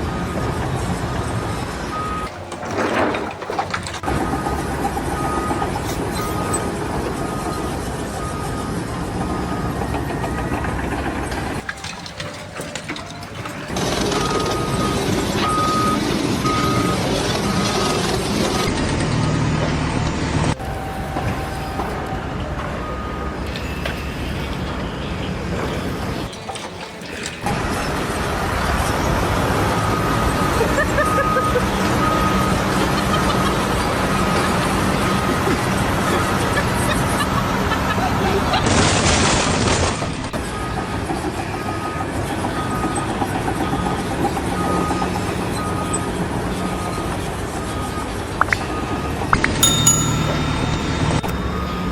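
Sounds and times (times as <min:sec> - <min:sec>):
heavy vehicle engine running: 0:00.0 - 0:26.5
faint short beeps: 0:49.4 - 0:51.6.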